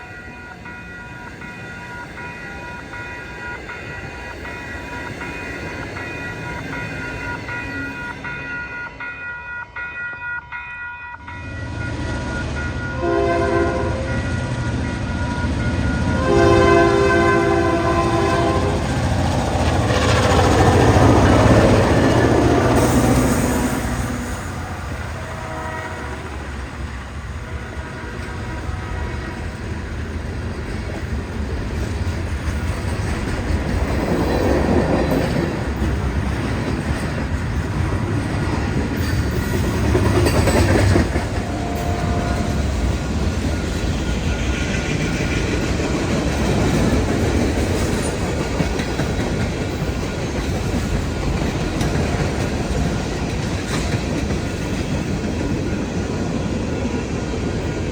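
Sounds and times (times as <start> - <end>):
train wheels clacking on rails: 11.2 - 57.9
faint train horn: 12.8 - 14.5, 16.0 - 29.9, 40.3 - 43.1.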